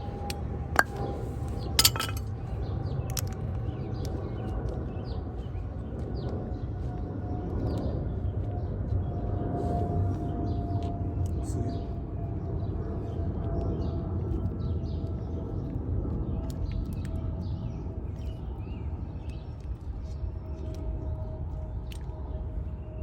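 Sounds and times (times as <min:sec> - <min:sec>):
metal parts clinking: 0:01.8 - 0:02.2.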